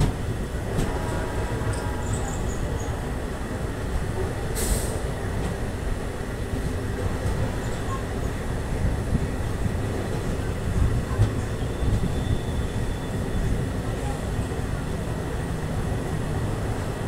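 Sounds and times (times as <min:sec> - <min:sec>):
train rumbling on rails: 0:00.0 - 0:17.0
brief high hiss: 0:04.6 - 0:05.0.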